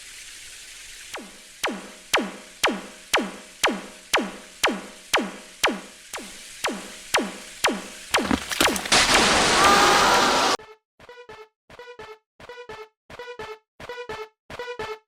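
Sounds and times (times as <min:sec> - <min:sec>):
synthesized drum beat: 0:01.6 - 0:10.2.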